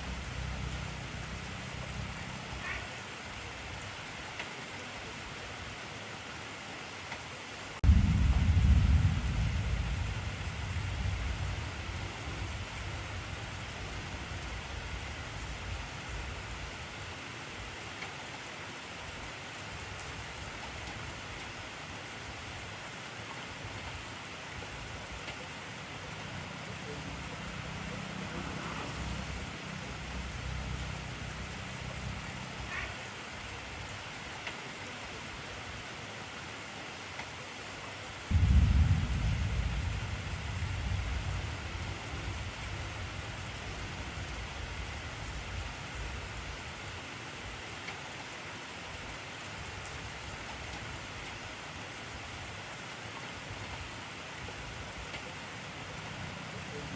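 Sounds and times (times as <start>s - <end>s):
heavy rain hiss: 0.0s - 56.9s
low rumble: 7.8s - 13.6s, 38.3s - 43.6s.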